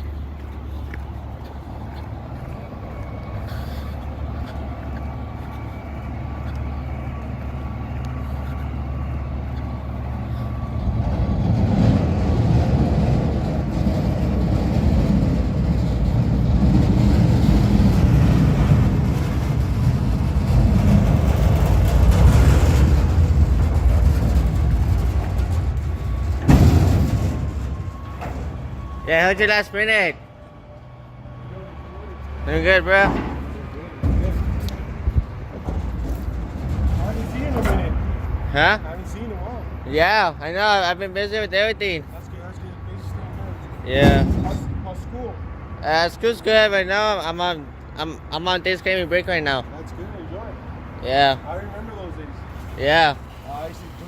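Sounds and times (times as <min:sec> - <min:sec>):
garbage truck diesel engine rumbling: 0:00.0 - 0:54.0.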